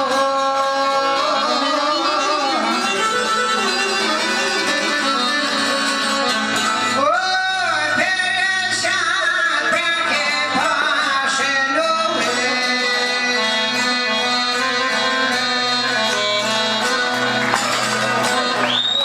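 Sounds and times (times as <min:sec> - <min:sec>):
man singing ornamented notes: 0:00.0 - 0:03.0, 0:06.9 - 0:16.0
plucked strings: 0:14.9 - 0:18.9.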